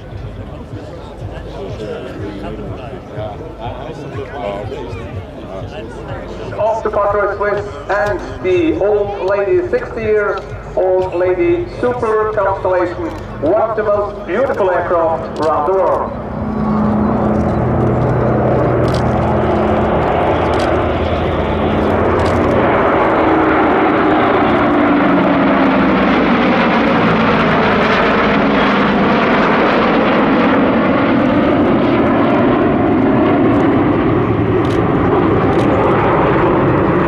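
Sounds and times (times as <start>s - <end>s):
propeller aircraft engines droning: 0.0s - 37.0s
rushing noise: 10.0s - 29.1s.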